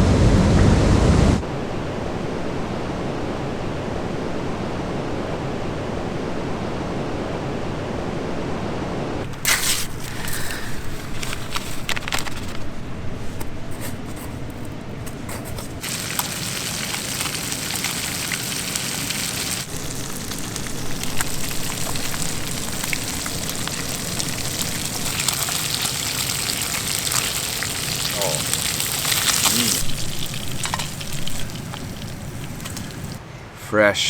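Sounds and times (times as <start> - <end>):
crackling hiss: 9.2 - 12.9, 15.5 - 33.3.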